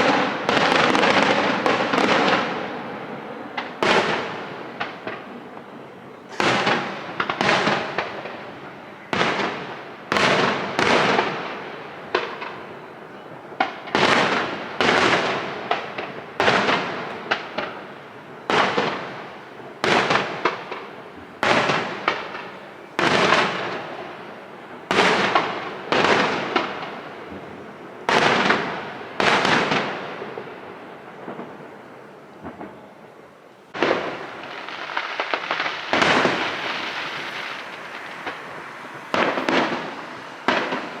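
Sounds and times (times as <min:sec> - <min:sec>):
firework shells bursting: 0:06.3 - 0:08.6, 0:33.8 - 0:41.0.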